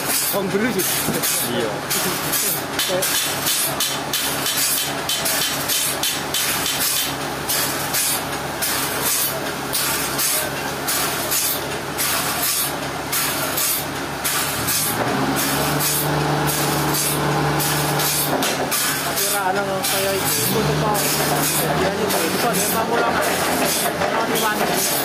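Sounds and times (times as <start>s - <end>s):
large engine running: 0.0s - 25.0s
hissing rasping noise: 14.3s - 19.0s.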